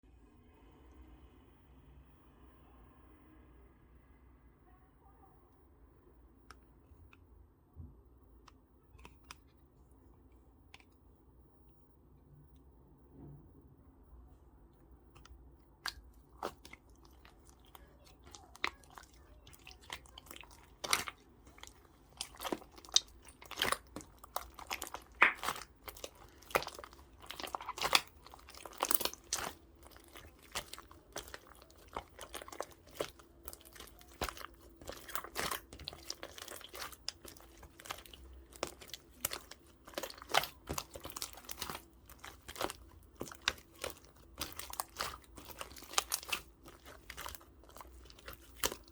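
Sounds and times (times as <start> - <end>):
hands squishing slime: 15.1 - 48.9.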